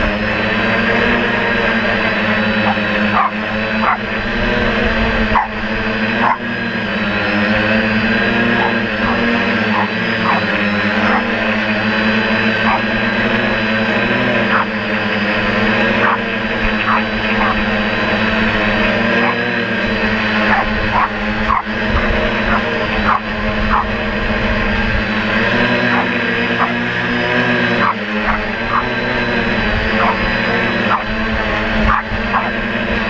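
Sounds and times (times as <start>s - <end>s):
drone propellers humming: 0.0s - 33.0s
small dog yapping: 2.6s - 4.1s, 5.4s - 5.6s, 6.2s - 6.5s, 8.4s - 11.5s, 12.6s - 13.0s, 20.5s - 21.8s, 22.5s - 24.0s, 31.9s - 32.6s.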